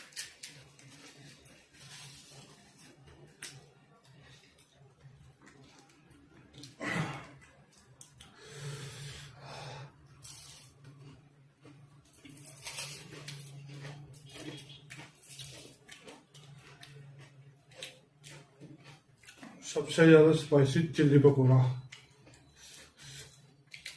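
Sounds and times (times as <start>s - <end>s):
chewing fried food: 0.0s - 23.9s
hissing breaths: 8.3s - 10.0s.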